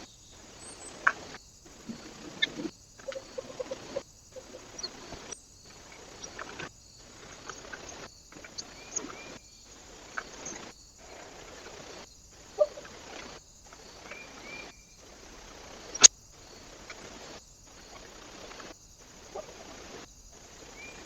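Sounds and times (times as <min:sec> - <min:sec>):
birds chirping: 0:00.0 - 0:10.7
steady hiss: 0:00.0 - 0:21.0.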